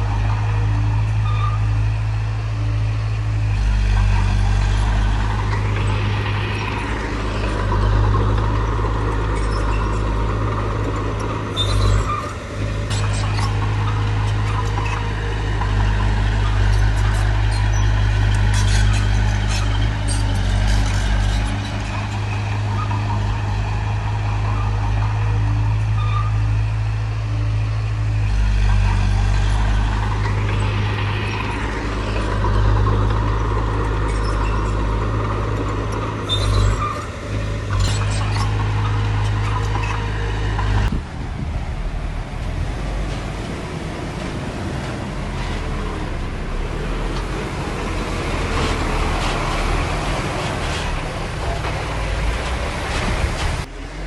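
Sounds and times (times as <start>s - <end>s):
heavy diesel machinery engine droning: 0.0s - 54.0s
metallic clanks and rattles: 3.9s - 23.5s, 28.5s - 41.0s.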